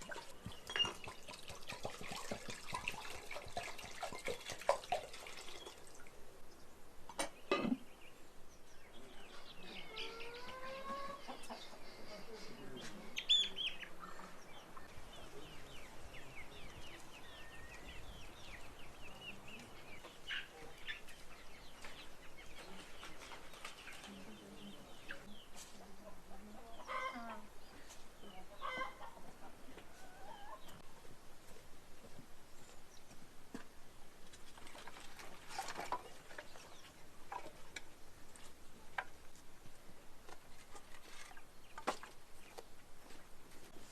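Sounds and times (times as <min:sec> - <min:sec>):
chickens clucking: 0:09.2 - 0:31.1.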